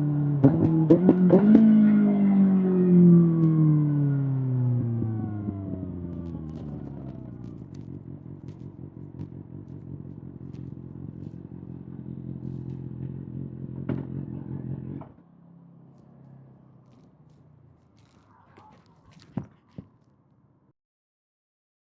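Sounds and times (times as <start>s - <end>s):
motorcycle engine idling: 4.6s - 15.1s.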